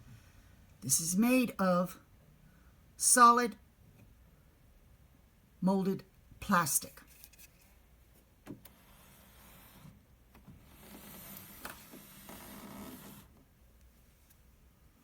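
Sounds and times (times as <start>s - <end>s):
soft scraping hiss: 6.8s - 14.6s.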